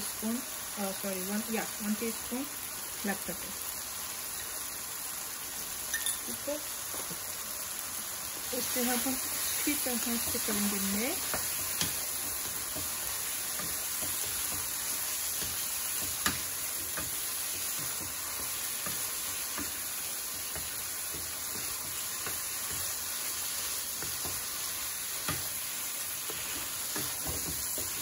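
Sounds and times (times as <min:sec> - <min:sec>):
food sizzling in a frying pan: 0:00.0 - 0:28.0
spatula knocking and scraping pan: 0:08.8 - 0:28.0.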